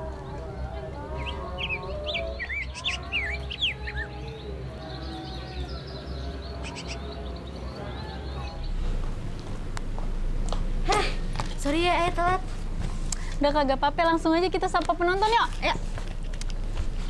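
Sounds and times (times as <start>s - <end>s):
background music: 0.0s - 10.4s.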